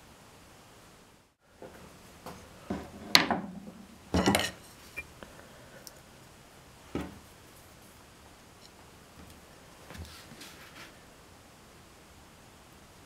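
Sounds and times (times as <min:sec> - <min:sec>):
tools knocking and clinking: 0:04.2 - 0:04.6.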